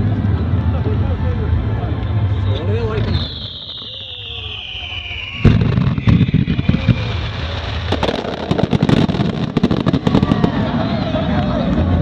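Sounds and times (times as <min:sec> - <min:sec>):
fireworks bangs and crackles: 0:02.5 - 0:12.0.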